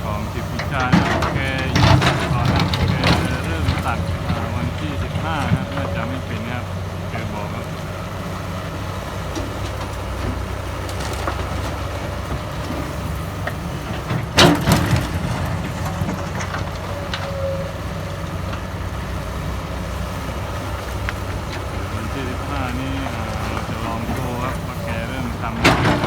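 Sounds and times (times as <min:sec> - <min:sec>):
bucket crunching soil: 0:00.0 - 0:07.7
excavator diesel engine running: 0:00.0 - 0:26.0.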